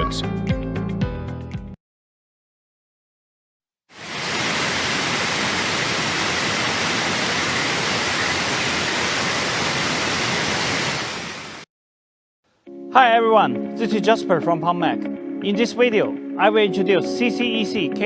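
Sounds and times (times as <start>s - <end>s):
steady rushing hiss: 4.0s - 11.6s.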